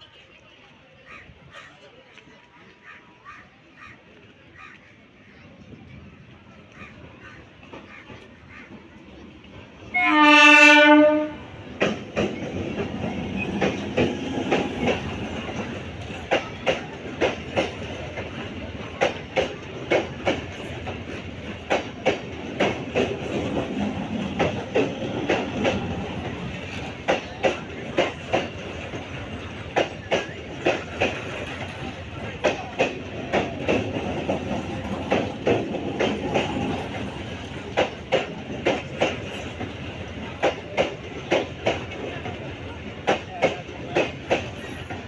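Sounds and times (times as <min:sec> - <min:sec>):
train rumbling past: 0:04.4 - 0:45.0
train horn blast: 0:09.9 - 0:11.6
wheels clattering over rail joints: 0:11.5 - 0:45.0.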